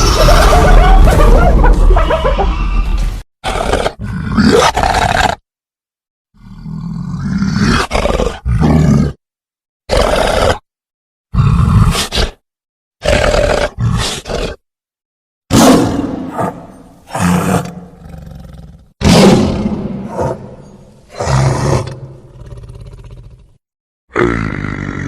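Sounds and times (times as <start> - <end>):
creature growls and roars: 0.0 - 1.9, 3.4 - 5.4, 6.4 - 9.2, 9.9 - 10.7, 11.3 - 12.4, 13.0 - 14.6, 15.5 - 25.0.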